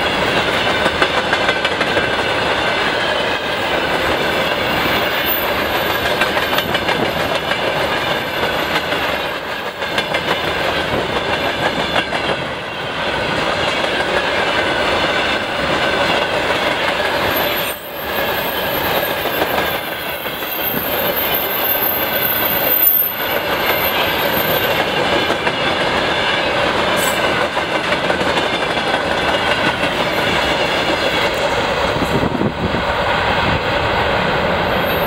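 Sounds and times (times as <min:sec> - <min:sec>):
steel wheels clattering on rails: 0:00.0 - 0:35.0
high wheel squeal: 0:02.7 - 0:06.2, 0:17.1 - 0:27.4.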